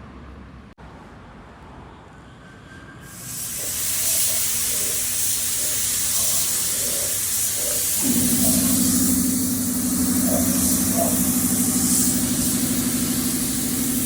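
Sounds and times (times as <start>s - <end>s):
air spray gun hissing: 3.1s - 14.0s
low machine hum: 3.6s - 14.0s.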